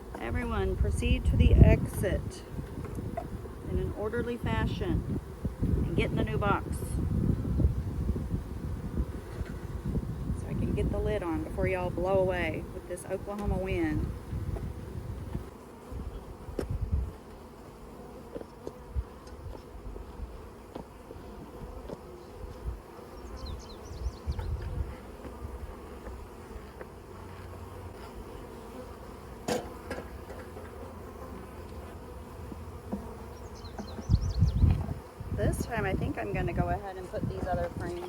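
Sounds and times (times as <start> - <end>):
honey bees buzzing: 0.0 - 38.0
wind rumbling on microphone: 0.2 - 17.2, 22.4 - 26.2, 33.6 - 38.0.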